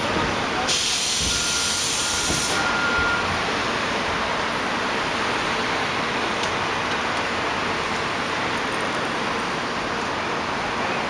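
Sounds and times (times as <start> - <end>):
street traffic noise: 0.0 - 11.0
air brakes hissing: 0.6 - 3.0.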